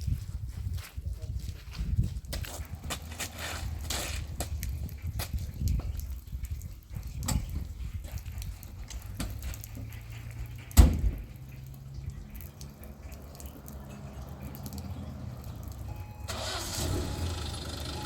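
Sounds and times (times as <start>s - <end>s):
door slamming shut: 10.8s - 11.2s.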